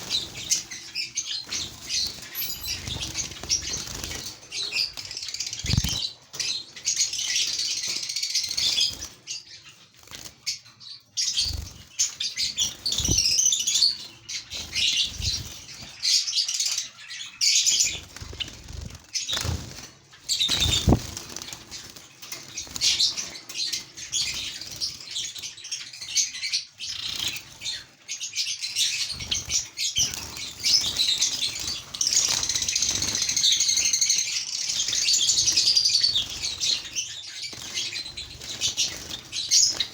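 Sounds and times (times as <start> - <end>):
wings fluttering: 0.0 - 6.6, 10.0 - 10.6, 11.4 - 13.5, 14.4 - 16.1, 17.8 - 23.4, 34.9 - 39.9
birds chattering and chirping: 0.0 - 39.9.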